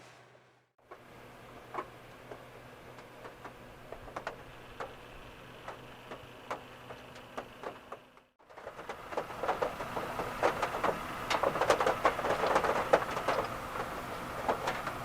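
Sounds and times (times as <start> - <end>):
raindrops tapping on car roof: 5.7 - 15.0.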